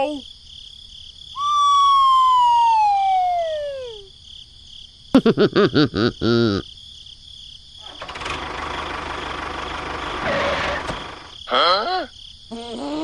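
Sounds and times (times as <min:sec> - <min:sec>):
cartoon descending whistle: 0:01.4 - 0:04.0.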